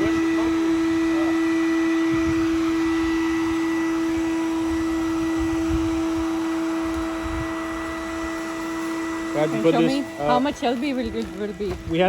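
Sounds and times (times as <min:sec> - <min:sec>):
small motor humming: 0:00.0 - 0:12.0.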